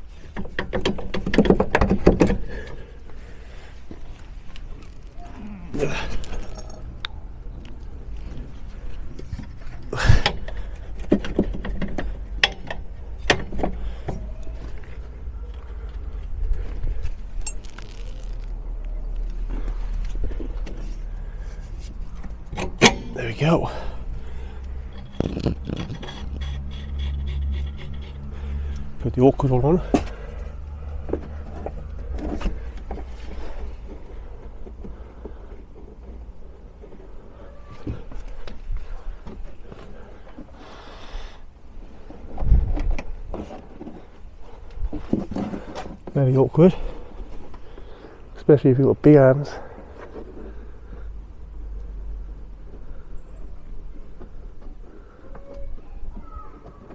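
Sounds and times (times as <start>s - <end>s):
clicks and knocks of nut fitting: 0.4s - 2.8s, 21.6s - 23.2s
metal clunk: 0.4s - 2.9s, 21.6s - 23.5s, 29.9s - 30.3s
hand tools clicking on metal: 17.5s - 18.3s.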